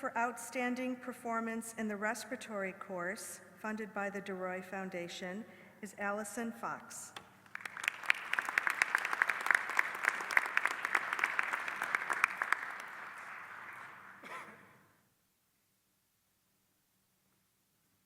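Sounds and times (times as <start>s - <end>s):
audience applauding: 7.5s - 14.3s.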